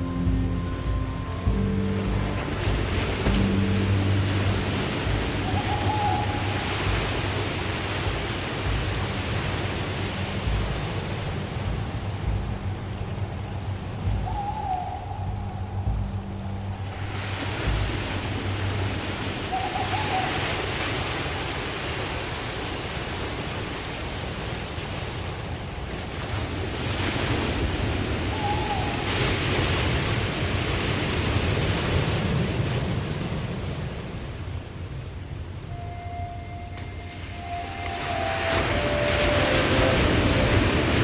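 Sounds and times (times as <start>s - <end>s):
wavering animal call: 0.0s - 8.6s, 13.6s - 21.4s, 28.2s - 29.8s, 35.7s - 41.0s
waterfall rushing: 0.0s - 25.2s, 35.6s - 41.0s.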